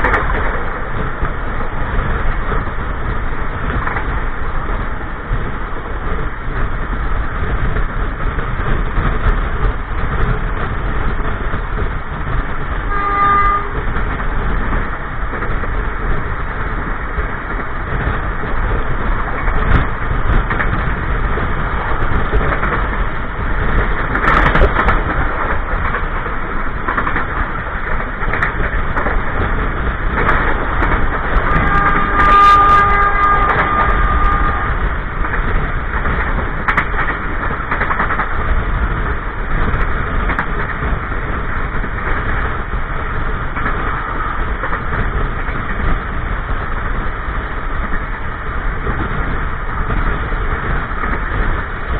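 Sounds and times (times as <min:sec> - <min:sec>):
train wheels rumbling on rails: 0:00.0 - 0:51.9
train horn: 0:12.9 - 0:14.0, 0:31.4 - 0:34.9.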